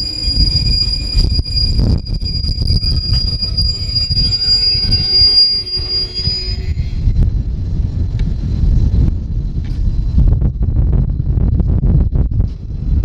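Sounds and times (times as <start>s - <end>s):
train wheels squealing: 0.0s - 10.2s
train low rumble: 0.0s - 13.0s.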